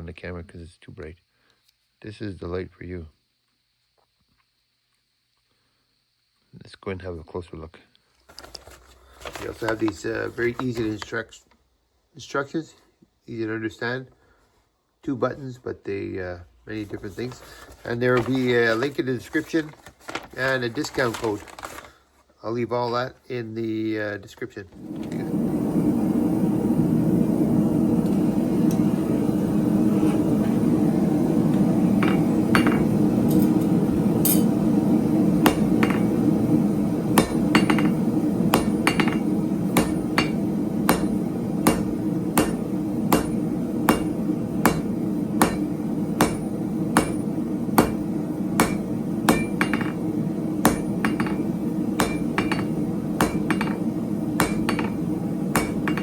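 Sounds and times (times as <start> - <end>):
hammer striking steel on anvil: 32.0 - 34.6, 35.4 - 36.3, 37.1 - 56.0.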